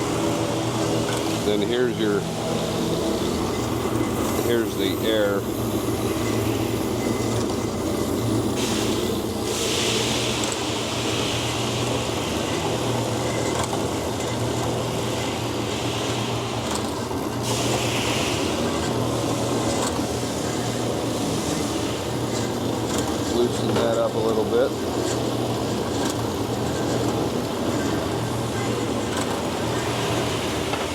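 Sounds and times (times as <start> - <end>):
air line hissing: 0.0 - 13.3, 14.9 - 24.8.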